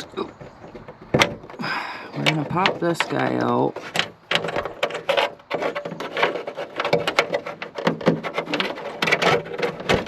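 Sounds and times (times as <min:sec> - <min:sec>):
hands rubbing plastic: 0:00.0 - 0:10.0
plastic clicks and knocks: 0:00.3 - 0:10.0.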